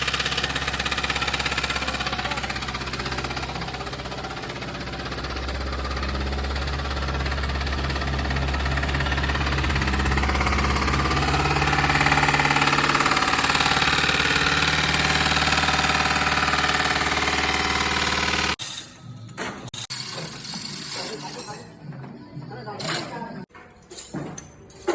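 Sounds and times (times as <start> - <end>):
car engine running: 0.0 - 18.6.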